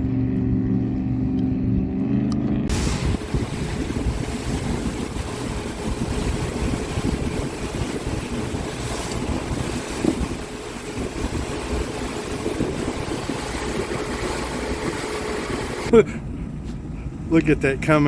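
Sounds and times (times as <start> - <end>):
water noise: 0.0 - 17.3
wind buffeting microphone: 0.0 - 17.6
boat engine: 0.0 - 18.0.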